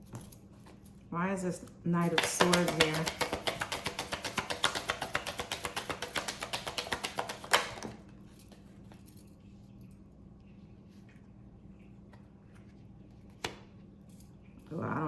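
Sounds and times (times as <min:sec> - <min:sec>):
sharp card snap: 0:02.0 - 0:07.9
cards being shuffled: 0:02.0 - 0:08.0.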